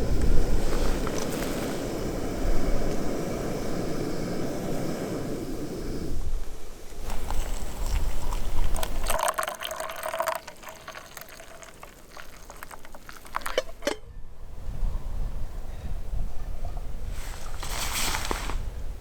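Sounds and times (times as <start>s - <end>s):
liquid pouring into container: 7.1s - 13.9s.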